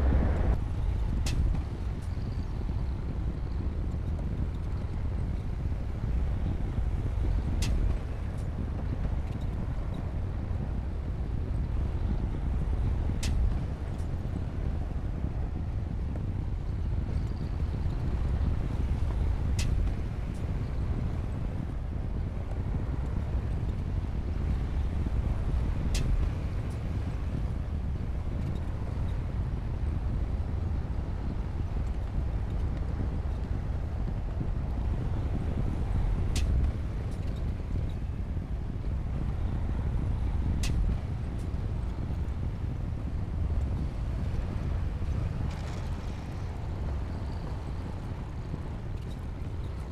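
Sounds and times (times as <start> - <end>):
bulldozer diesel engine rumbling: 0.0 - 0.6.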